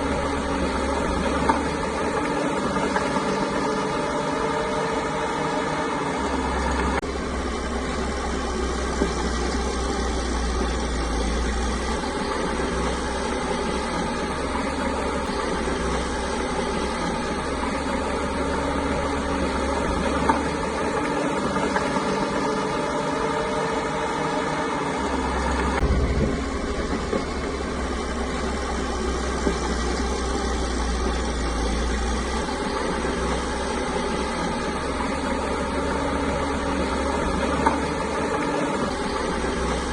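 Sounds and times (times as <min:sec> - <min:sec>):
bulldozer diesel engine running: 0:00.0 - 0:39.9
deep low rumble: 0:25.7 - 0:33.2.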